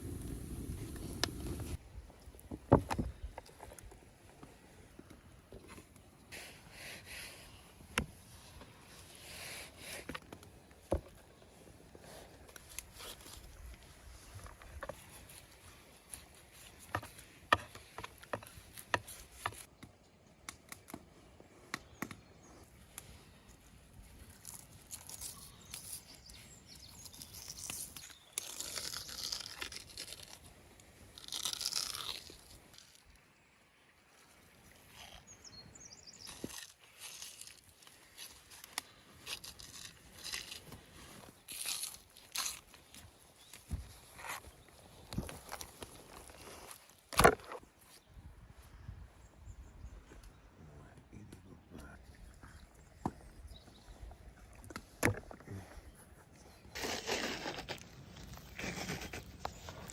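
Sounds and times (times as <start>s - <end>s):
scraping and rustling: 56.7s - 59.9s.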